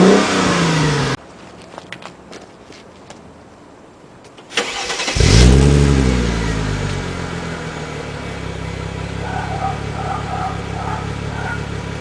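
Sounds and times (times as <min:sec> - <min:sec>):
car engine starting and idling: 0:04.5 - 0:12.0.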